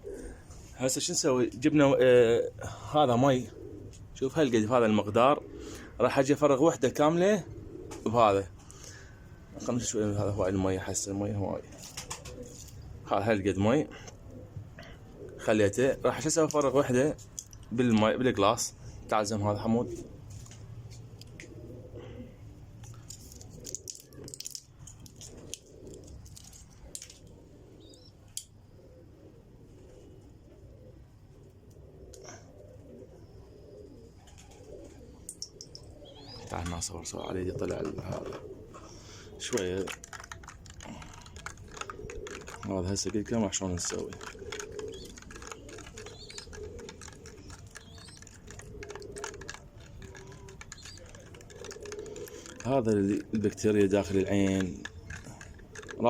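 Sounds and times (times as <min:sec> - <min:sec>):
pigeons cooing: 0:00.0 - 0:56.0
small objects clicking and rattling: 0:23.0 - 0:27.3, 0:39.5 - 0:53.3, 0:54.2 - 0:56.0
faint bird chirps: 0:25.3 - 0:39.8, 0:40.8 - 0:56.0.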